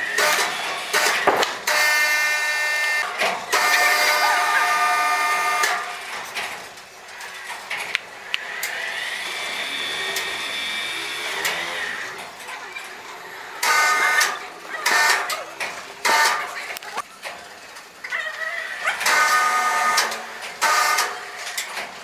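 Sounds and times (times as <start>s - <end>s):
saw whining cutting timber: 0.0s - 17.0s, 18.8s - 21.7s
wood knocks: 1.2s - 1.6s.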